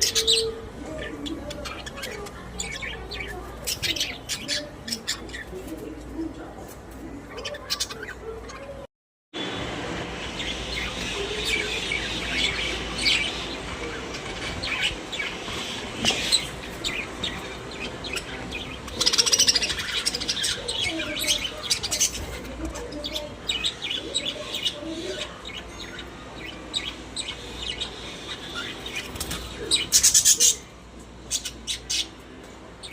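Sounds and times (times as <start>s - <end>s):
budgerigars chattering: 10.4s - 30.7s.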